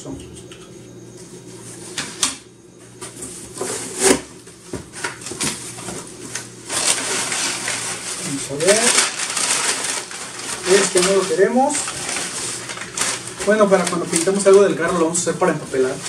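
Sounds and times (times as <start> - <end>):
packing paper crinkling: 4.9 - 16.0.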